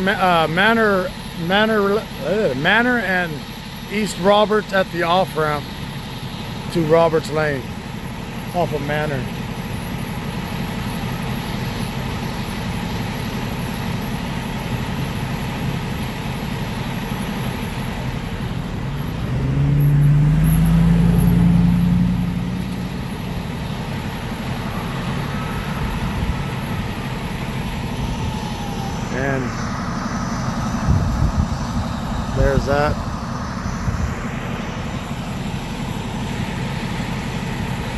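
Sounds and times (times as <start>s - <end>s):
road traffic noise: 0.0s - 37.9s
vehicle passing close: 18.8s - 27.6s.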